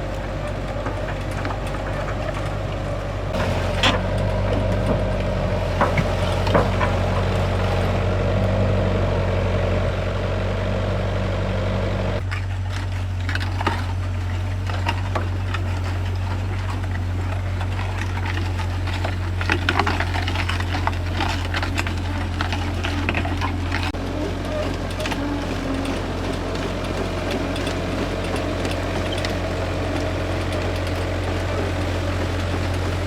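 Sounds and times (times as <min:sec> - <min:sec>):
clicks and light knocks: 0:00.0 - 0:08.0
motor humming: 0:00.0 - 0:13.3, 0:13.9 - 0:33.0.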